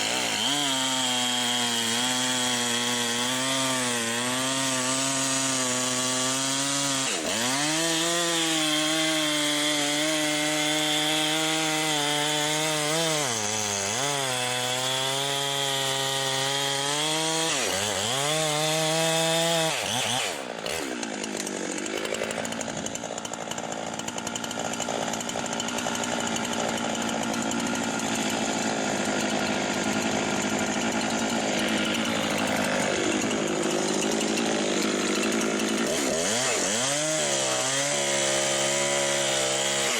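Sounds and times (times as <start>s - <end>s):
chainsaw at full throttle: 0.0s - 39.9s.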